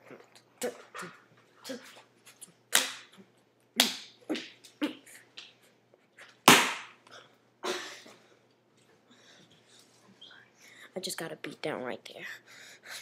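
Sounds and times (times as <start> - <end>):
person making sharp vocal noises: 3.8 - 5.3.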